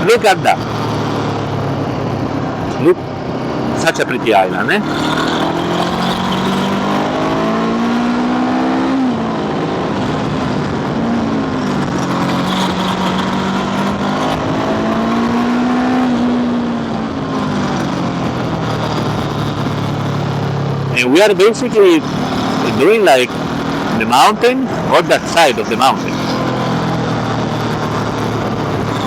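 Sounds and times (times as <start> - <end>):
wind rushing over microphone: 0.0 - 29.0
scooter engine running: 17.6 - 29.0.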